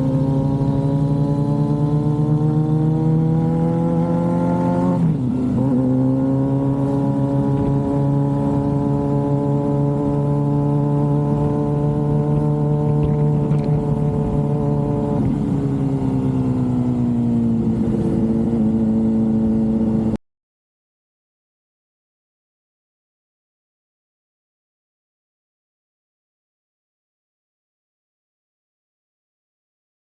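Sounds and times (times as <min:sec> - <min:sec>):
motorcycle engine accelerating: 0:00.0 - 0:20.2.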